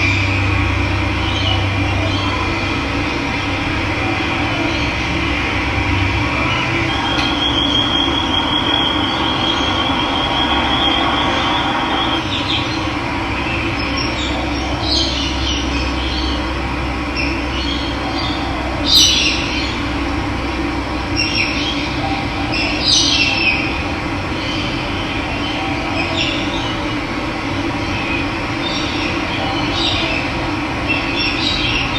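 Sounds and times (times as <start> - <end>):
thin high steady tone: 0.0 - 12.6
birds chirping: 0.0 - 20.0.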